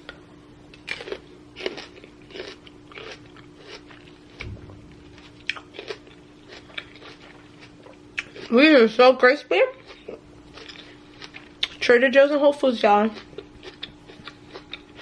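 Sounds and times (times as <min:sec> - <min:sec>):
low hum: 0:00.0 - 0:08.4
person chewing crunchy grapes: 0:00.7 - 0:08.9, 0:09.7 - 0:11.9, 0:13.0 - 0:15.0.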